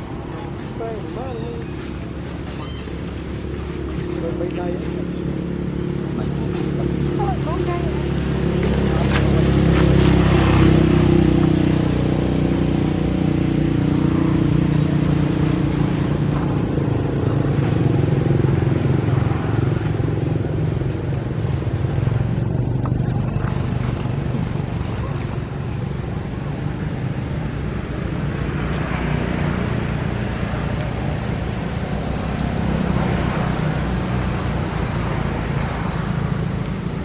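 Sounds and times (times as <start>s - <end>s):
motor engine running: 0.0s - 28.6s.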